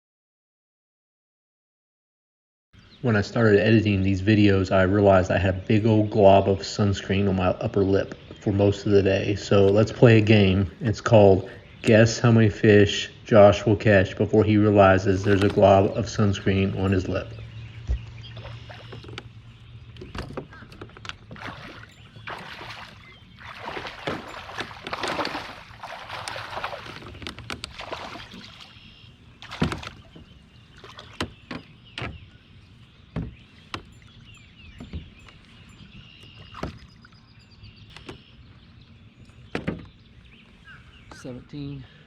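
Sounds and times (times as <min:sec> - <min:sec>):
water splashing around kayak: 0:13.3 - 0:38.6
knocks on kayak hull: 0:29.4 - 0:30.3, 0:33.1 - 0:33.9.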